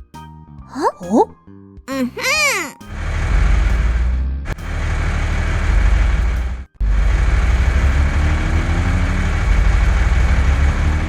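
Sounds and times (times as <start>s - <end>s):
heavy vehicle engine running: 3.0s - 11.0s.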